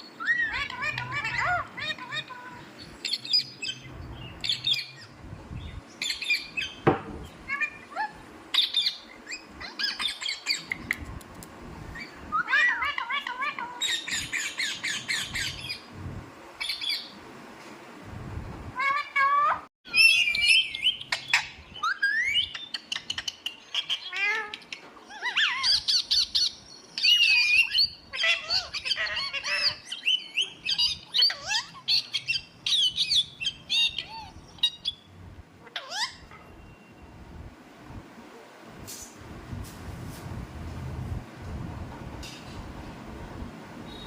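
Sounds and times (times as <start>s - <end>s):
parrot squawking and chirping: 0.2s - 5.1s, 6.0s - 10.9s, 12.0s - 15.8s, 18.8s - 36.9s.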